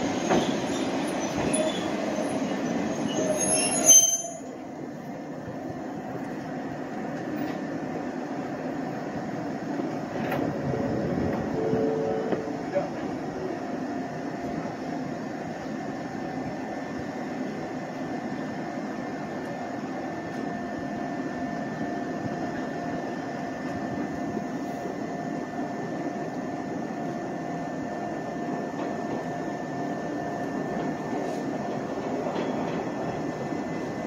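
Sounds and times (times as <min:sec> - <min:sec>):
electric train rumbling with whine: 0:00.0 - 0:34.0.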